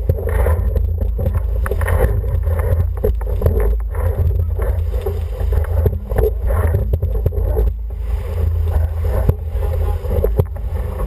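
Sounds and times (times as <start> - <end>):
water rushing past hull: 0.0 - 11.0
wind buffeting microphone: 0.0 - 11.0.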